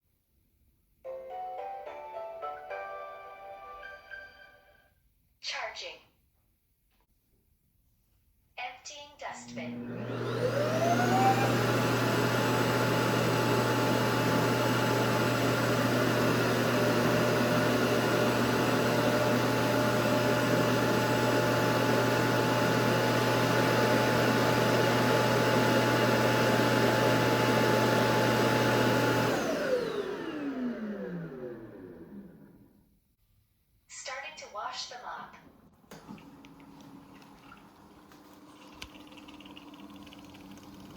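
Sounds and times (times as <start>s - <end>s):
vacuum fan motor whine: 9.5s - 32.7s, 35.9s - 40.9s.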